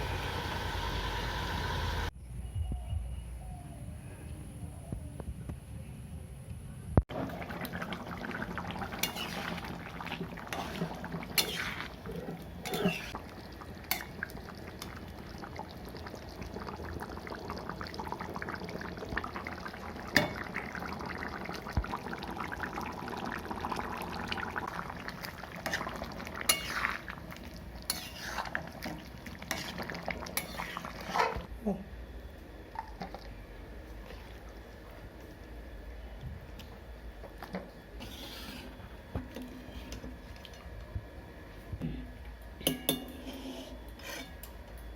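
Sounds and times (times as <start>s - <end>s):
food sizzling: 0.0s - 2.1s, 7.1s - 31.5s
metal utensil scraping pan: 9.0s - 9.6s, 10.5s - 13.2s, 26.5s - 27.1s, 27.9s - 28.6s, 29.5s - 31.4s, 38.0s - 38.8s, 42.8s - 44.4s.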